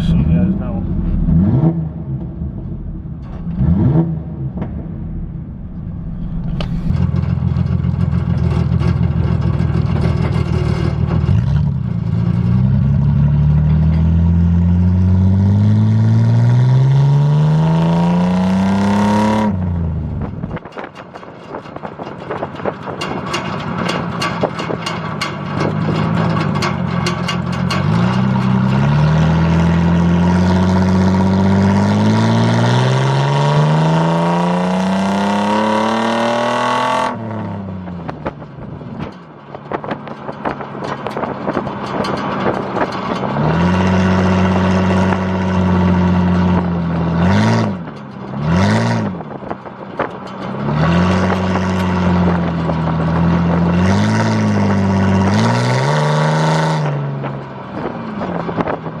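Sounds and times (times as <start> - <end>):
truck engine revving: 0.0 - 20.8, 25.6 - 59.0.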